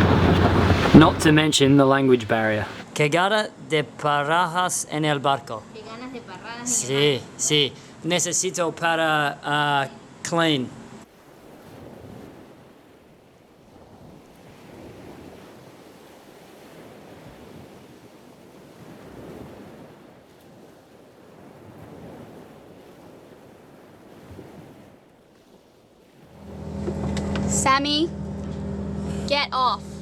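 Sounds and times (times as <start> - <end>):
wind on microphone: 0.0 - 2.8, 11.2 - 25.6
sea water lapping: 0.0 - 2.9, 11.0 - 30.0.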